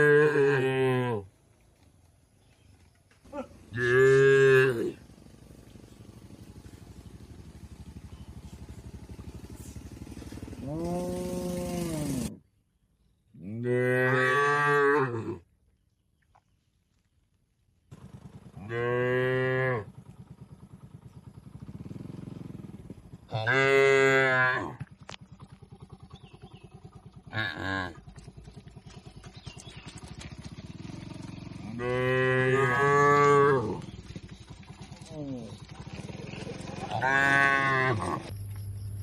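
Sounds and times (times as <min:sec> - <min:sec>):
cattle mooing: 0:00.0 - 0:01.3, 0:03.7 - 0:05.0, 0:10.6 - 0:12.3, 0:13.5 - 0:15.4, 0:18.6 - 0:19.9, 0:23.3 - 0:24.9, 0:31.6 - 0:33.9, 0:36.5 - 0:38.3.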